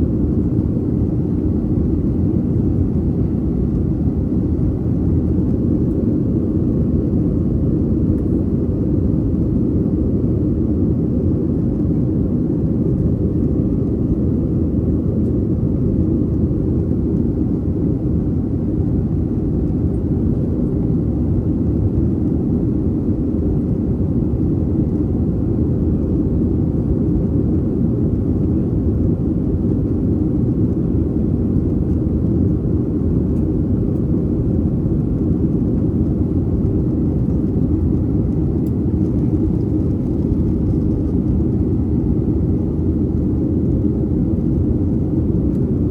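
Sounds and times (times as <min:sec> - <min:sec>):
jet engine rumble in cabin: 0:00.0 - 0:45.9.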